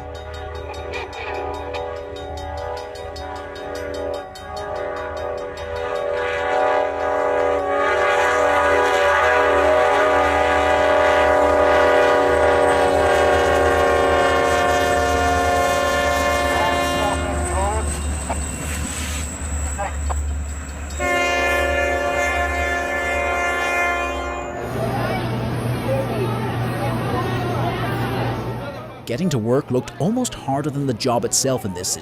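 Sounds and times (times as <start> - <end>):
train horn blast: 0.0 - 17.9, 21.0 - 24.9
passing train rumble: 0.0 - 31.8.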